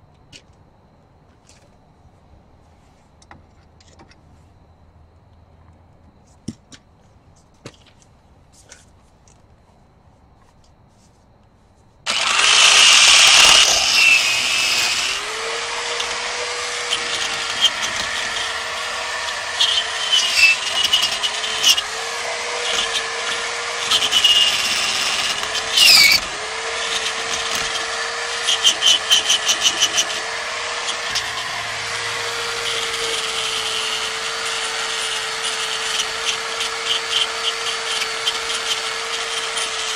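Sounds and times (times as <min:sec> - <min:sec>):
harsh scraping of wire brush: 0:12.1 - 0:33.5
power drill running: 0:12.1 - 0:39.9.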